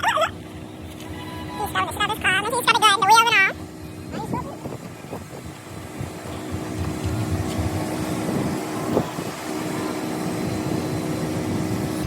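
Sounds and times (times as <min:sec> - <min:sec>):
pressure washer spraying: 0:03.2 - 0:12.0.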